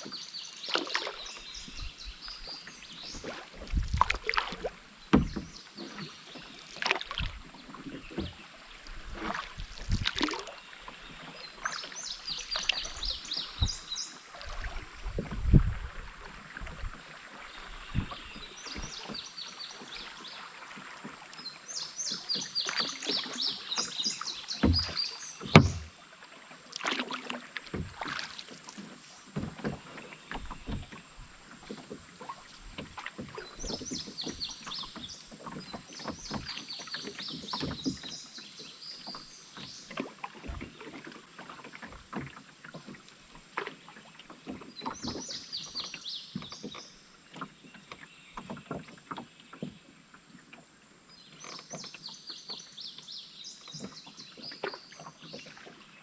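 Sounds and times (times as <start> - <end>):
paddle splashing in water: 0.0 - 56.0
knocks and clicks: 25.5 - 25.9.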